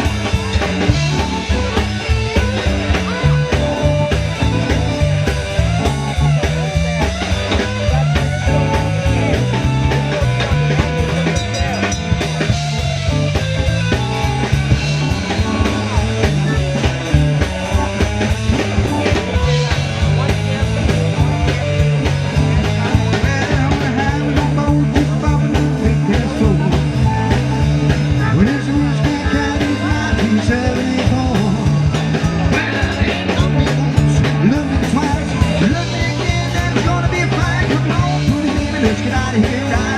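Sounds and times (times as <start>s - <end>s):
bass line: 0.0s - 39.9s
guitar: 0.0s - 39.9s
steady drum beat: 0.0s - 39.9s
person singing: 22.7s - 39.9s.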